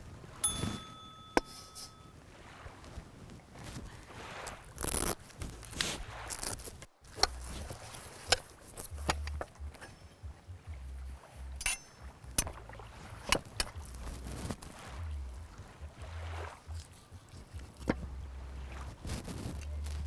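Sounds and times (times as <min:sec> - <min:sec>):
low rumble: 0:08.9 - 0:13.2, 0:13.8 - 0:16.9.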